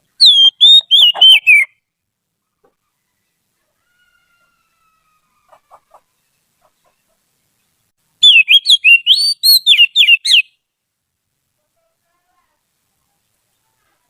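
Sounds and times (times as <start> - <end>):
bird singing whistled notes: 0.2 - 1.8, 8.2 - 10.6.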